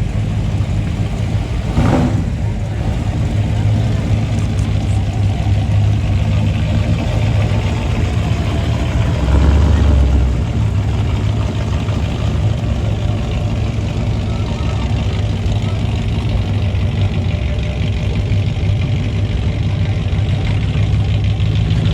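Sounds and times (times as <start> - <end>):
car engines idling: 0.0 - 21.9
louder low rumble: 0.0 - 21.9.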